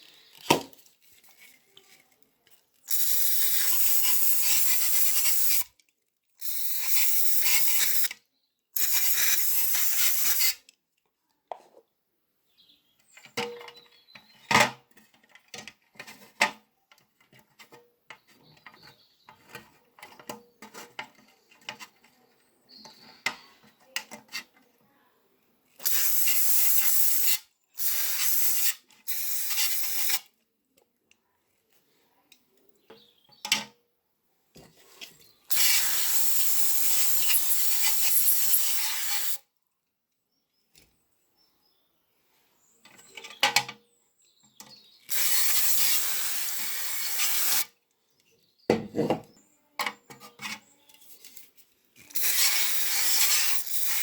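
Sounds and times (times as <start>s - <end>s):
pressurised spray hissing: 2.9s - 5.6s, 6.4s - 8.1s, 25.8s - 30.2s, 35.5s - 39.4s, 45.1s - 47.6s, 52.2s - 54.0s.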